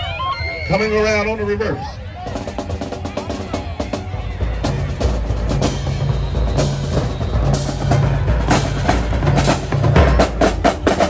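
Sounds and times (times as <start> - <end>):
bass drum beats: 2.2 - 11.0.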